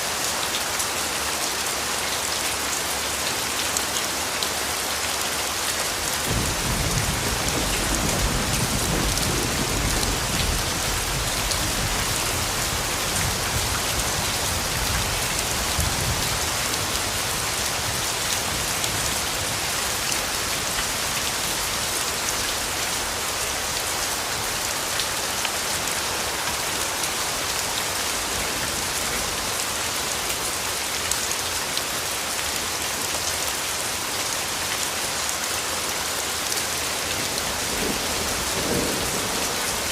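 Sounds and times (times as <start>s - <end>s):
rain pattering on foliage: 0.0s - 39.9s
distant thunder rumble: 6.3s - 13.6s.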